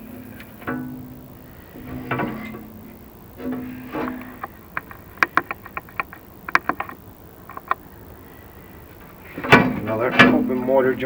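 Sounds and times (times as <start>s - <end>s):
ringing clicks and knocks: 0.0s - 7.8s.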